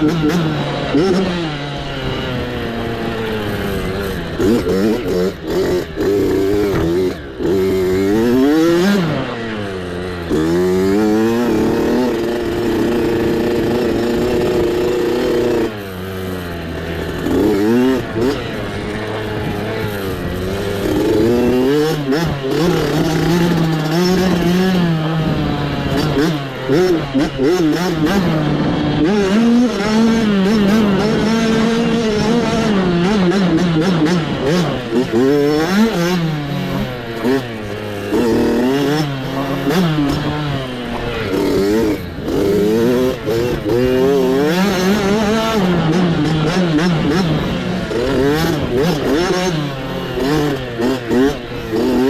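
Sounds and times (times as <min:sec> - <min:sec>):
mini bike engine revving: 0:00.0 - 0:52.0.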